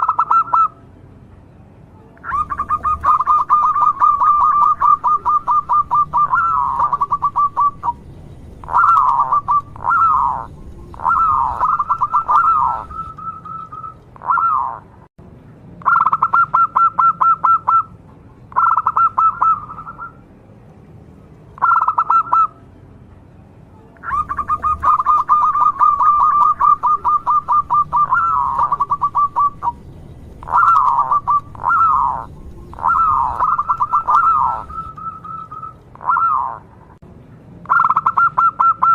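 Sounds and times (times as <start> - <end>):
dove cooing: 0.0 - 0.7, 2.2 - 8.0, 8.6 - 14.9, 18.6 - 20.2, 21.6 - 22.5, 24.0 - 36.7.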